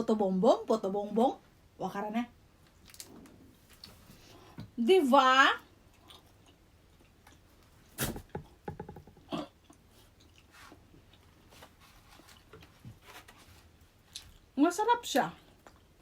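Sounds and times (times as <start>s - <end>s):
person chewing with wet smacks: 5.7s - 7.8s, 9.5s - 11.5s.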